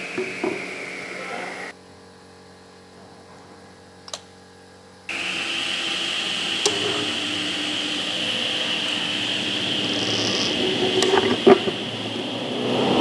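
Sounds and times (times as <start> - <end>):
woodworking machine whining: 0.0 - 1.8, 5.1 - 13.0
brief click: 4.0 - 4.3.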